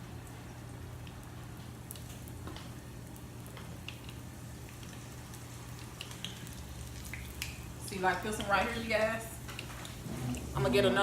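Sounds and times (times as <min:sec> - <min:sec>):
frying oil crackling: 0:00.0 - 0:11.0.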